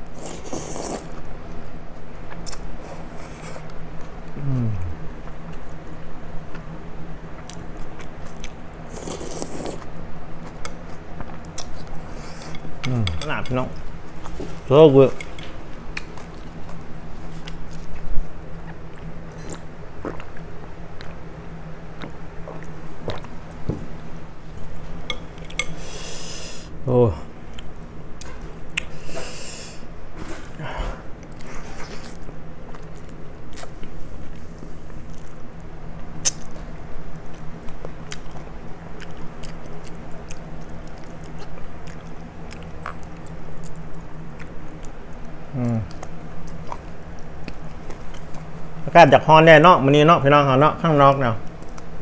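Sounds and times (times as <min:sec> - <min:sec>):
man chewing: 0:00.0 - 0:01.3, 0:07.4 - 0:14.6, 0:15.8 - 0:26.8, 0:30.9 - 0:48.8
low steady hum: 0:00.0 - 0:52.0.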